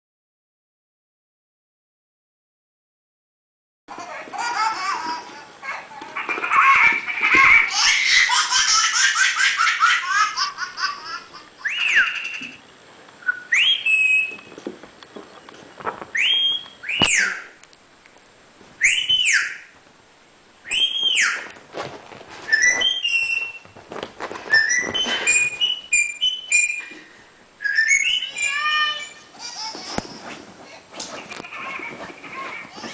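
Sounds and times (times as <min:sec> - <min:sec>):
pet bird whistling and chattering: 0:11.6 - 0:12.6, 0:13.3 - 0:14.5, 0:16.2 - 0:17.5, 0:18.8 - 0:19.6, 0:20.7 - 0:21.5, 0:22.5 - 0:23.6, 0:24.5 - 0:27.0, 0:27.6 - 0:29.1.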